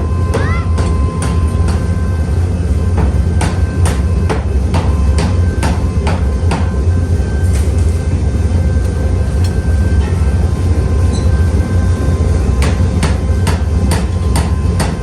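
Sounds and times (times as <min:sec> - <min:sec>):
low hum of workshop machinery: 0:00.0 - 0:15.0.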